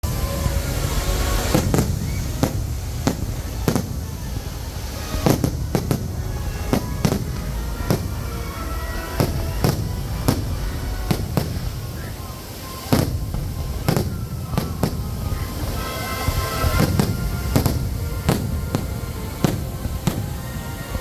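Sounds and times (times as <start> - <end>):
low rumble: 0.0 - 15.8
fireworks bangs: 0.0 - 21.0.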